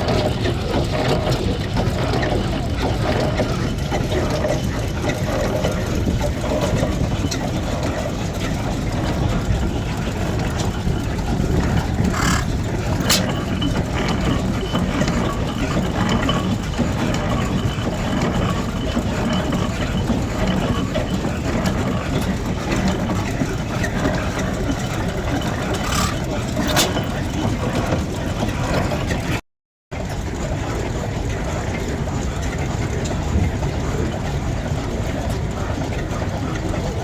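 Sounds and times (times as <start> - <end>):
engine idling: 0.0 - 29.4.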